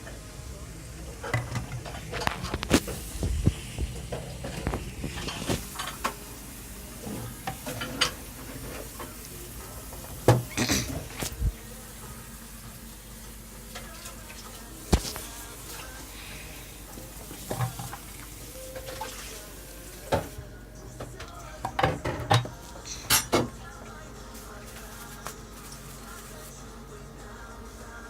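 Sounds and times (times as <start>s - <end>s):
utensils clinking on dishes: 4.0s - 6.2s, 7.0s - 9.3s, 21.1s - 23.6s.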